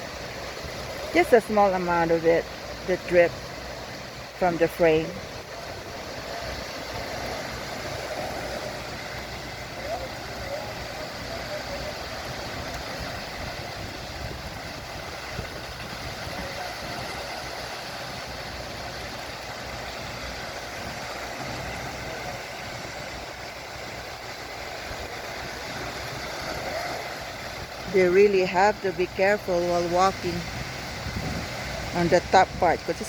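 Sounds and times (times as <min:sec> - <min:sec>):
heavy truck engines running: 0:00.0 - 0:33.0.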